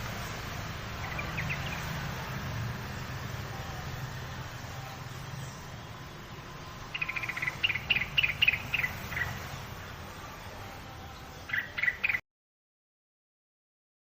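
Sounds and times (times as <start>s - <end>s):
bird chirping call: 1.0s - 2.0s, 6.8s - 10.0s, 11.2s - 12.2s.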